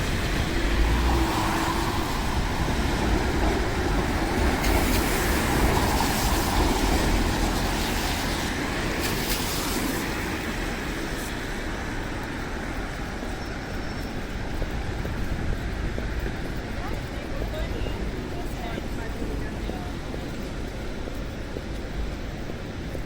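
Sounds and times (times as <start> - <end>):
vehicle passing on wet street: 0.0 - 22.6.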